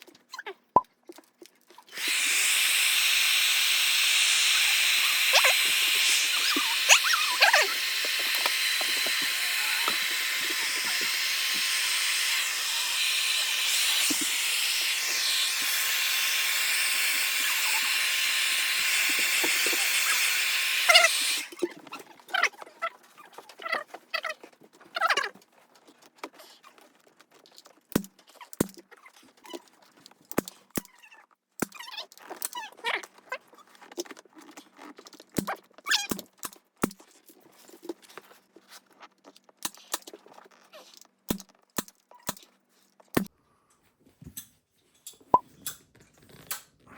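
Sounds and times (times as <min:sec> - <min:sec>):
spraying hiss of air: 0:02.0 - 0:21.5.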